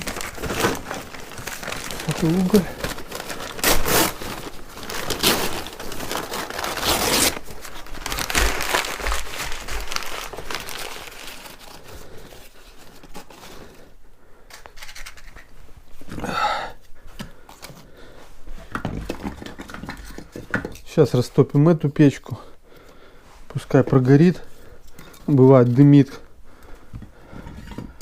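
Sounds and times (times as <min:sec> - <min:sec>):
paper crumpling and tearing: 0:00.0 - 0:13.8.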